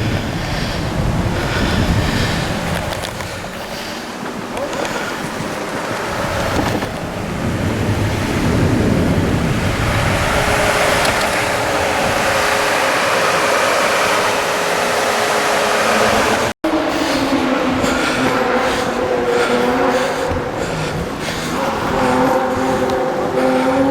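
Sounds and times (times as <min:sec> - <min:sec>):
rally car engine running hard: 0:00.0 - 0:23.9
wind noise on microphone: 0:00.0 - 0:23.9.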